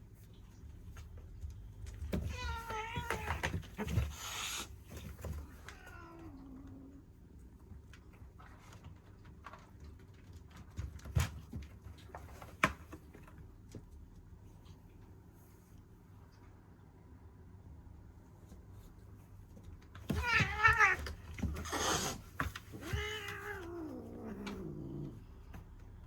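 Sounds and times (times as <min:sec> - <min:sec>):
cat hissing: 0:03.8 - 0:04.8, 0:20.2 - 0:25.2
cat yowling: 0:20.1 - 0:21.1, 0:22.8 - 0:25.0.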